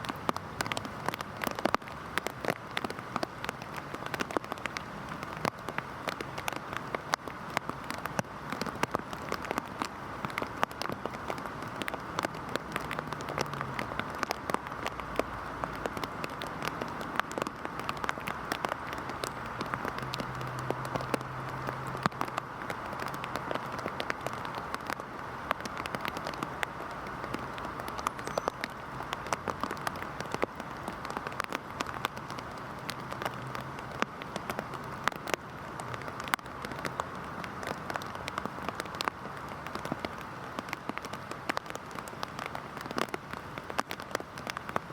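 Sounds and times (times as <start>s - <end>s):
heavy rain on a surface: 0.0s - 44.9s.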